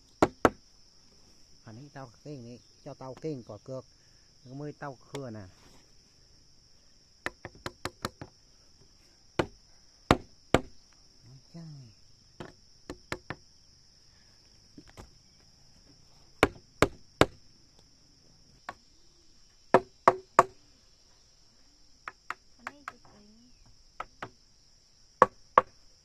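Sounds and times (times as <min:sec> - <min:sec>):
crickets buzzing: 0:00.0 - 0:26.0
hand tool striking wood: 0:00.2 - 0:00.6, 0:07.2 - 0:08.3, 0:09.4 - 0:10.8, 0:12.4 - 0:13.4, 0:16.4 - 0:17.4, 0:19.8 - 0:20.6, 0:25.2 - 0:25.7.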